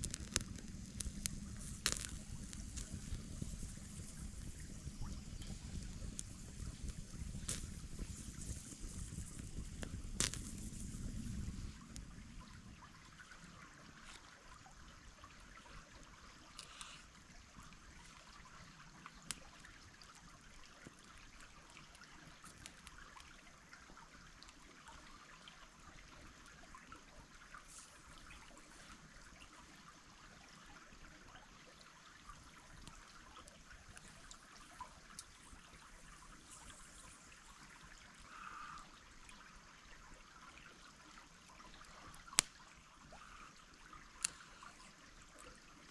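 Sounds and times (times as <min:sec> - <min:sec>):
faint clicks: 0:00.0 - 0:12.5, 0:16.5 - 0:18.3, 0:41.8 - 0:43.6, 0:44.2 - 0:45.6
small stream trickling: 0:00.0 - 0:45.9.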